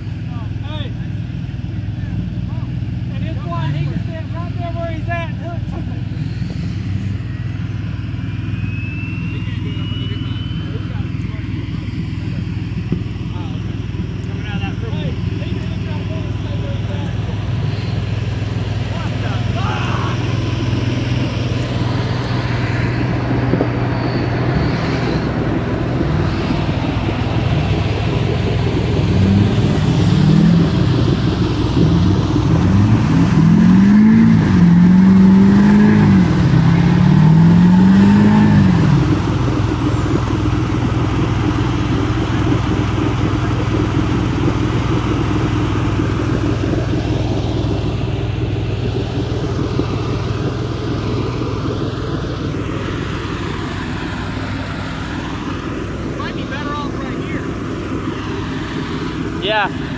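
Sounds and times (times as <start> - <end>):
vehicle engine idling and revving: 0.0 - 59.9.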